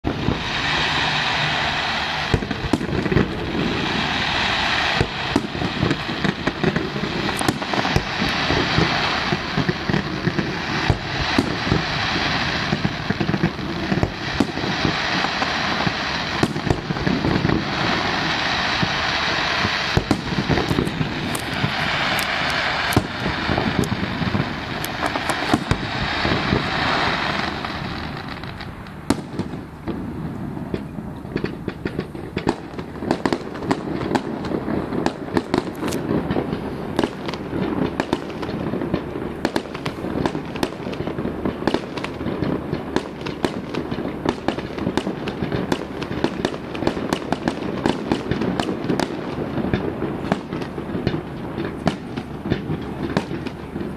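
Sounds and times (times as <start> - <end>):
fireworks bangs and pops: 0.0 - 53.9
fireworks crackling: 0.0 - 53.9.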